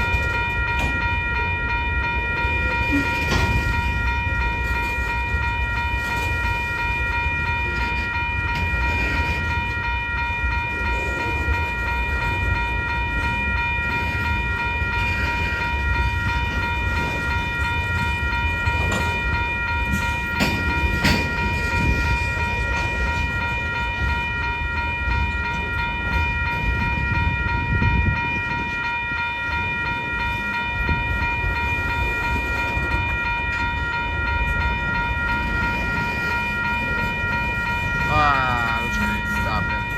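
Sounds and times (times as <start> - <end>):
high-pitched tone: 0.0 - 39.9
train wheels rumbling on rail: 0.0 - 39.9.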